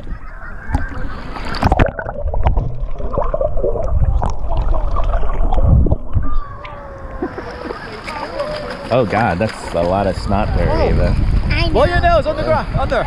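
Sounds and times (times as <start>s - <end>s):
water gurgling and sloshing: 0.0s - 12.8s
low rumble: 2.0s - 7.4s.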